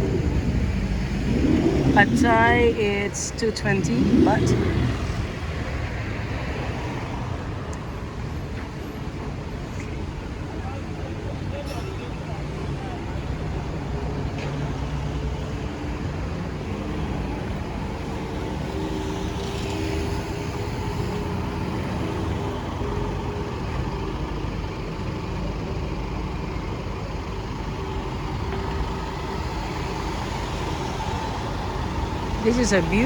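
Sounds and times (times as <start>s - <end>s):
vehicle engine running: 0.0s - 5.4s
street traffic: 0.0s - 33.0s.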